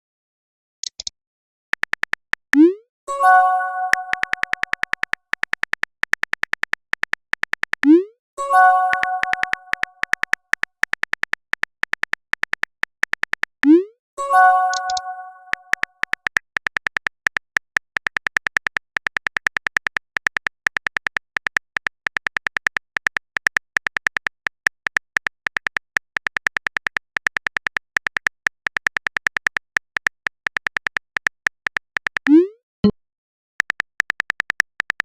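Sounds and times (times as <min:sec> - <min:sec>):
rising pop message sound: 0:02.6 - 0:05.0, 0:07.8 - 0:10.4, 0:13.6 - 0:16.0, 0:32.3 - 0:33.0
phone keyboard tap clicks: 0:03.8 - 0:07.8, 0:08.8 - 0:13.5.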